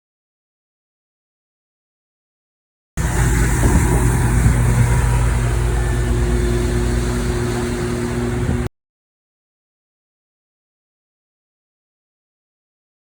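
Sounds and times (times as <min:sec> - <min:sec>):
boat engine droning: 0:03.0 - 0:08.7.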